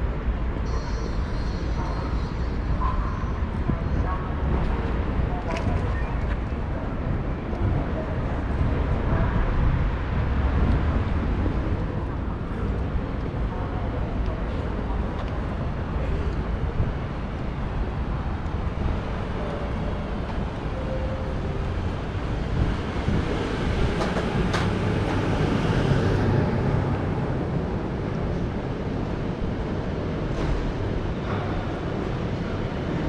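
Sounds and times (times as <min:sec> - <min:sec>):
train rumbling: 0:00.0 - 0:33.0.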